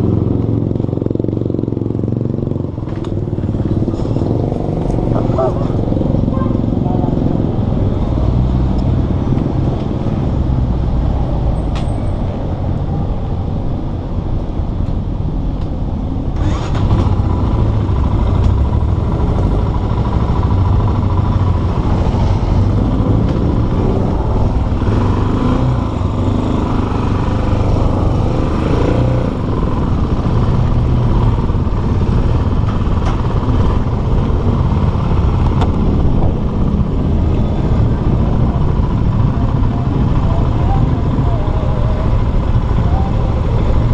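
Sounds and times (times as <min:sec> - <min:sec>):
motorcycle engine rumbling: 0:00.0 - 0:14.4, 0:15.0 - 0:43.9.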